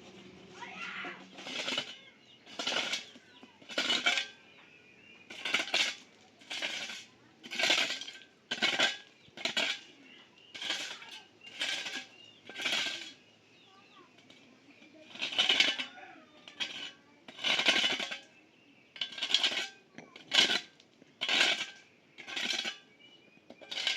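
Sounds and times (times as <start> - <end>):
gritty scraping with clinking rattle: 0.0 - 23.9.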